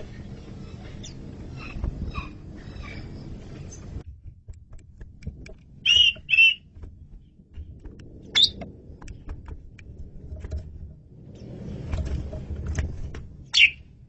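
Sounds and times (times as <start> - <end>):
starling whistled calls: 0.1 - 3.8, 5.8 - 6.7, 8.4 - 8.6, 13.5 - 13.8.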